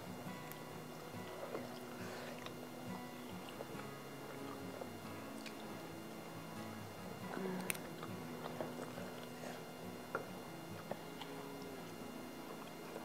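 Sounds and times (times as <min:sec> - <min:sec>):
faint background music: 0:00.0 - 0:13.0
person chewing food: 0:00.4 - 0:02.6, 0:03.2 - 0:05.7, 0:07.3 - 0:13.0.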